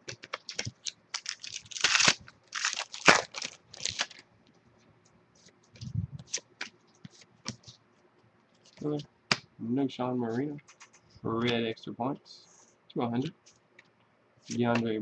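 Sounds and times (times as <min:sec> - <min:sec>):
foil card pack tearing: 0:00.3 - 0:04.2.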